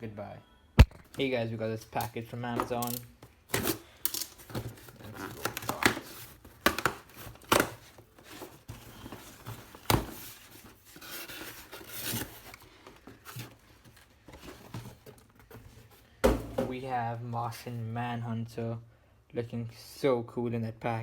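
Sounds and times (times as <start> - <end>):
packing crinkling and rustling: 2.0 - 16.1
tape and cardboard tearing: 2.7 - 8.4.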